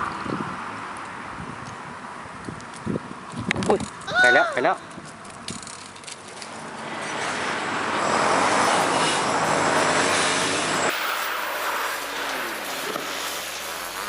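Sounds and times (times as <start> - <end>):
vehicle passing close by: 6.5 - 14.0.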